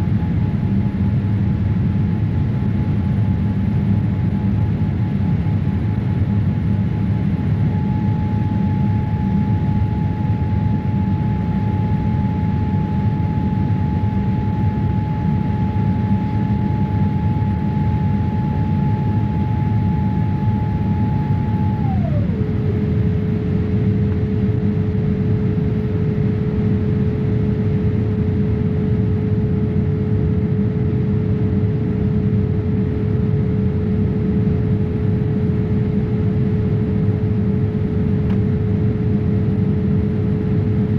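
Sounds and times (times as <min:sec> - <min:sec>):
steady whine sliding down: 0:07.6 - 0:26.9.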